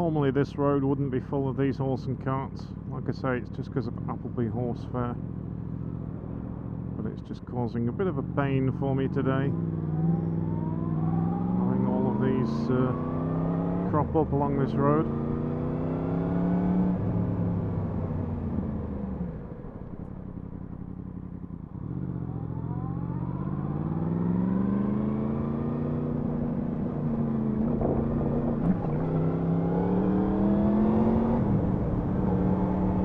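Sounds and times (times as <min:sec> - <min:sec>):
motorcycle engine revving: 0:09.4 - 0:33.0.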